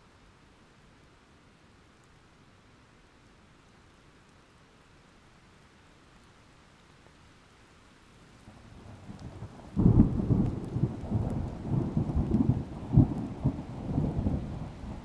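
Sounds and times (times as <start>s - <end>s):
thunder rumbling and clapping: 8.6s - 15.0s.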